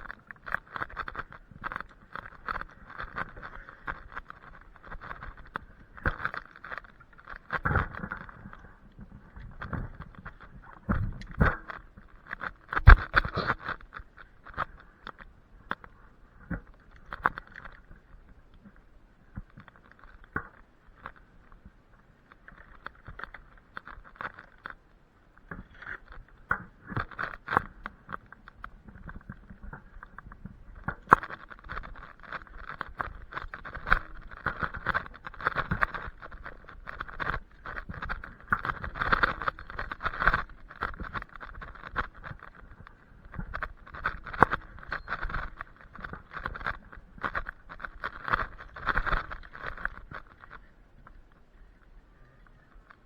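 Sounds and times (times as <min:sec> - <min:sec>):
tree branches rustling and scraping: 0:00.0 - 0:15.8, 0:30.9 - 0:51.4.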